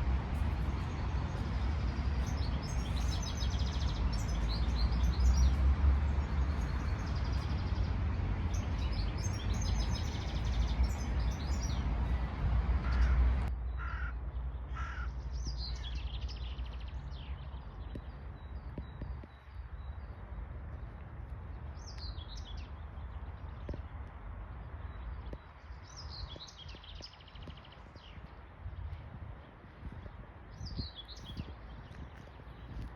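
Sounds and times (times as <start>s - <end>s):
wind rumble on microphone: 0.0s - 14.5s, 15.3s - 32.9s
songbirds chirping and trilling: 0.0s - 32.9s
crow cawing: 12.8s - 13.2s, 13.8s - 15.2s.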